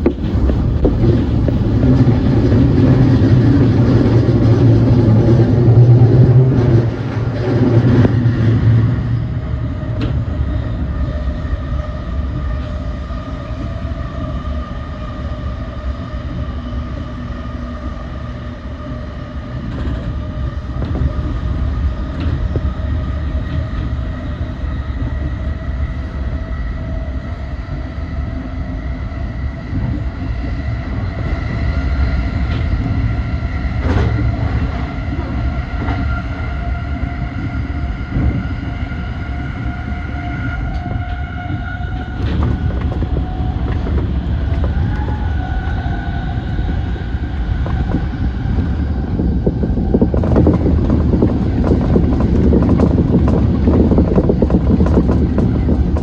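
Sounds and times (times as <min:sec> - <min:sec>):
wheels clicking over rail joints: 0:00.0 - 0:04.8, 0:40.6 - 0:48.3, 0:49.9 - 0:56.0
train wheels rumbling on rails: 0:00.0 - 0:56.0.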